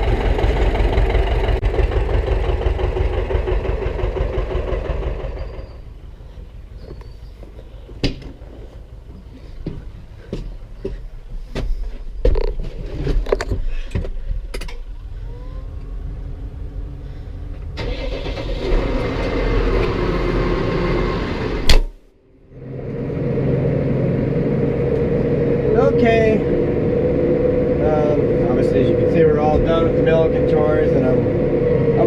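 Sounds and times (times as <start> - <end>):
vehicle engine running: 0.0 - 5.9, 22.3 - 32.0.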